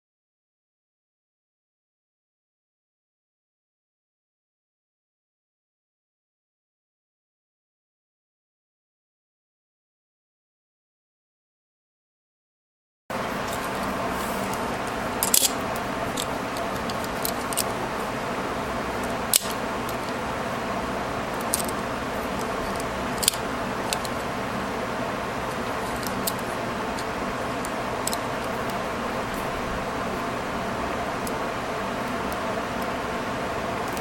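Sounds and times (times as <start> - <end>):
small sharp metal clicks: 19.3 - 20.1.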